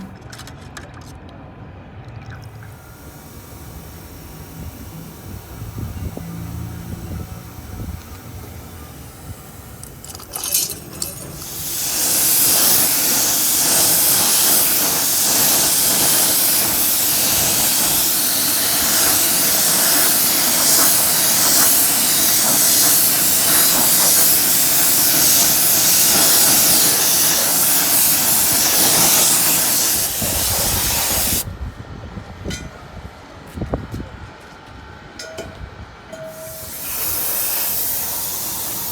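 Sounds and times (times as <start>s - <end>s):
spray nozzle hissing: 2.6s - 31.4s, 36.3s - 38.9s.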